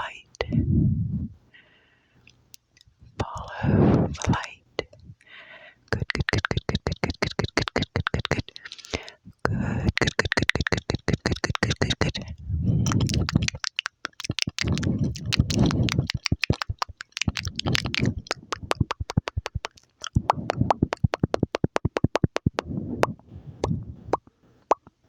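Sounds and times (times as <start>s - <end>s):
mouth clicks and smacks: 0.0s - 1.3s, 2.2s - 5.2s, 5.9s - 25.0s
low muffled bursts: 0.0s - 1.6s.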